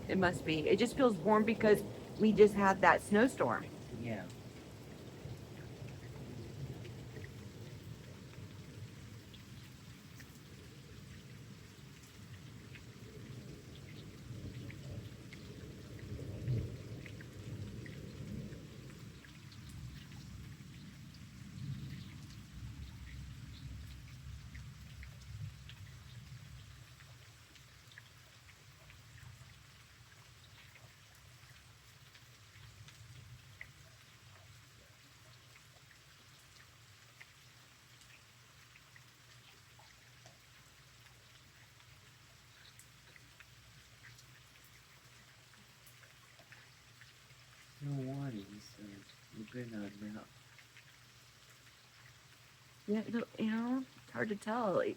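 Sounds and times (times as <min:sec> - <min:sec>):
thunder rumbling low: 0:00.0 - 0:09.4, 0:12.4 - 0:25.6
light rain: 0:00.0 - 0:54.9
raindrops ticking: 0:00.0 - 0:54.9.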